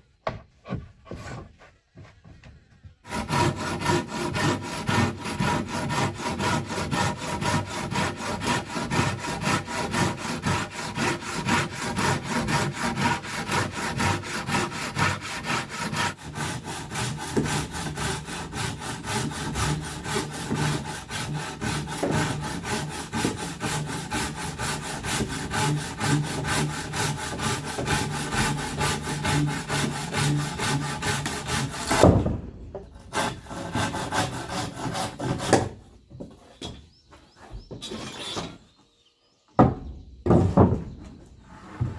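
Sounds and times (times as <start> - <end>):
wood knocking: 0.2 - 2.6, 39.6 - 41.1
hand saw cutting wood: 3.0 - 35.8.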